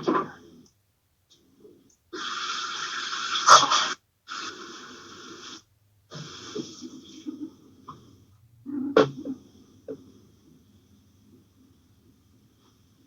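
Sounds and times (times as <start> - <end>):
breath-like hissing: 2.2 - 7.1.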